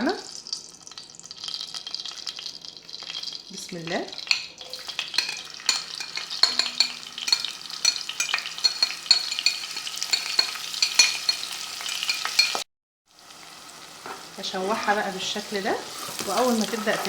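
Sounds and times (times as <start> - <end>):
onion sizzling in hot oil: 0.0 - 17.0
spoon scraping and tapping pot: 4.2 - 12.6.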